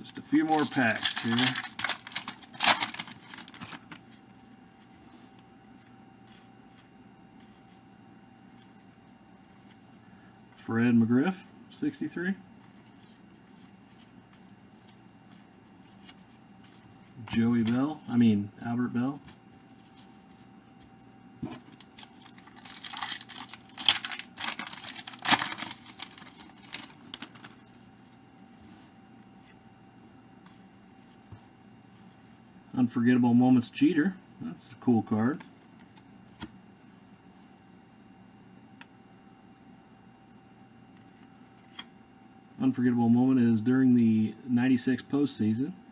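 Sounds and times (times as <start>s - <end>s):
card pack wrapper tearing: 0.0s - 4.0s, 21.6s - 27.6s
faint hum: 0.0s - 45.9s.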